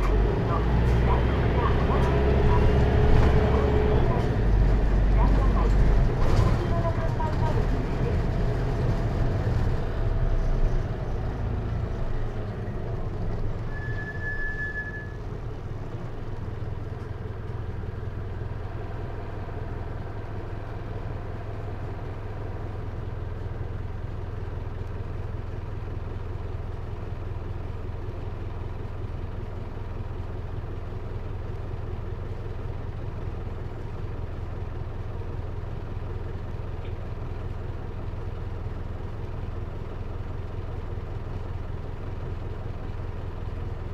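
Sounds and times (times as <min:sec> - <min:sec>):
diesel engine idling: 0:00.0 - 0:43.9
short high beep: 0:13.7 - 0:15.2.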